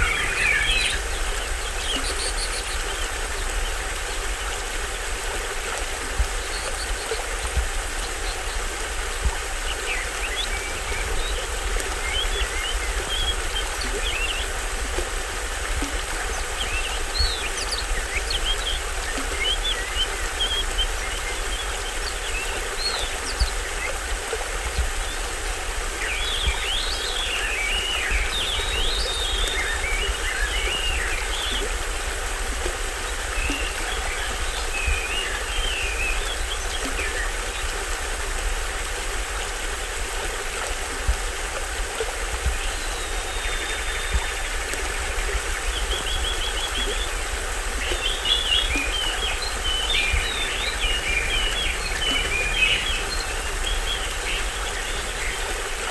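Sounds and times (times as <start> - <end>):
birds chirping and calling: 0.0 - 3.0, 47.8 - 55.6
small waterfall splashing: 0.0 - 55.9.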